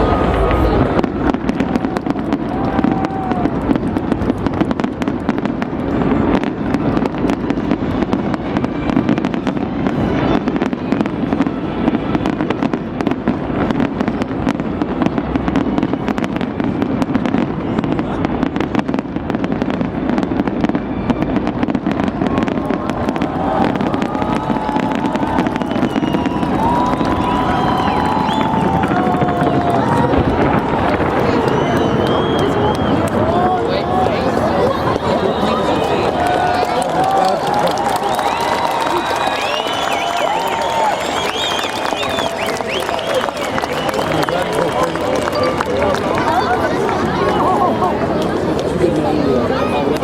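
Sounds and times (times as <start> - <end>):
people's voices: 0.0 - 4.6, 22.0 - 50.0
fireworks crackling and banging: 0.0 - 50.0.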